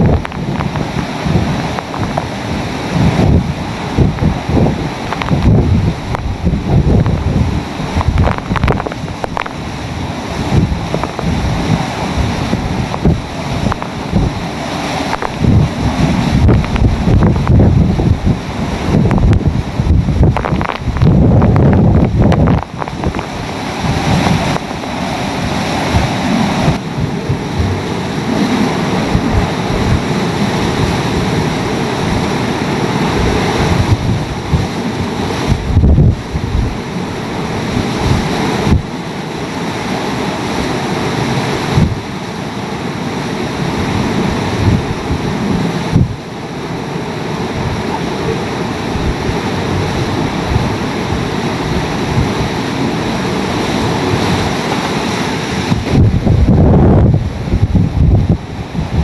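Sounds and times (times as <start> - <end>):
strong wind blowing in gusts: 0.0 - 59.0
wind buffeting on microphone: 0.0 - 59.0.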